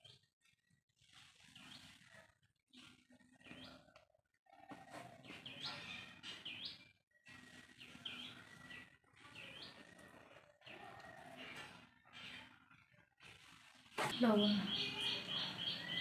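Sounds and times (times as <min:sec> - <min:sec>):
bird chirps: 0:05.2 - 0:12.7, 0:14.0 - 0:16.0.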